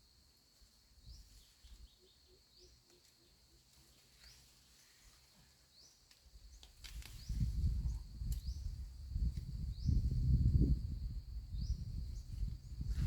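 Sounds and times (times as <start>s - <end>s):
low wind rumble: 6.9s - 13.0s.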